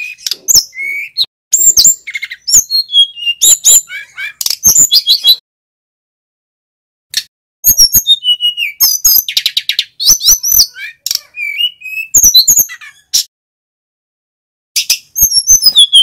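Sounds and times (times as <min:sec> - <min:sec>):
flycatcher singing: 0:00.0 - 0:05.4, 0:14.8 - 0:16.0.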